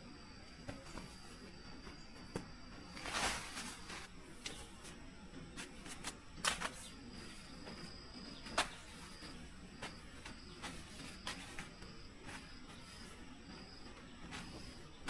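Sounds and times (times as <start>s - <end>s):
soft hiss: 0.6s - 5.0s.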